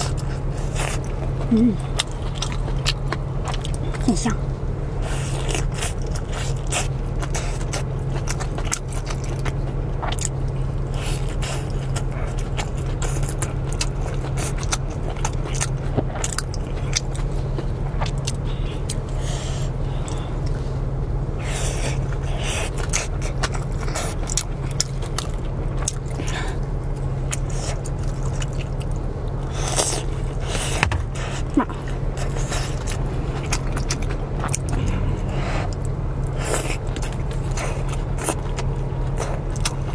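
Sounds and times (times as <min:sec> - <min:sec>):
person chewing noodles: 0:00.0 - 0:04.1, 0:05.0 - 0:20.8, 0:21.4 - 0:39.9
steady low hum: 0:00.0 - 0:39.9
slurping: 0:27.4 - 0:39.9.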